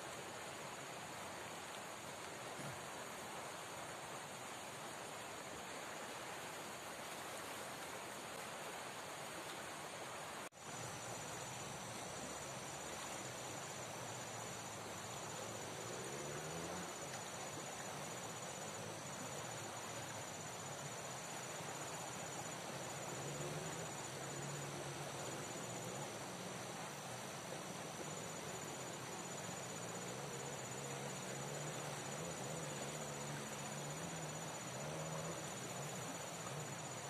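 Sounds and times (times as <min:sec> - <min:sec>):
river water rushing: 0:00.0 - 0:37.0
insect trill: 0:10.6 - 0:37.0.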